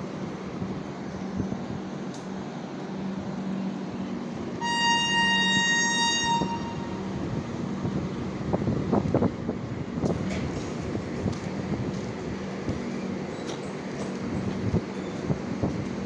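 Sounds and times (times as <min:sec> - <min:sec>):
train humming: 0:00.0 - 0:16.0
train horn: 0:04.6 - 0:07.3.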